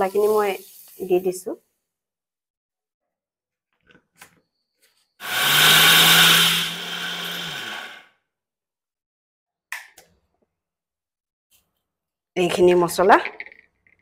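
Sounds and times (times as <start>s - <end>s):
electric mixer grinder running: 5.2s - 8.1s.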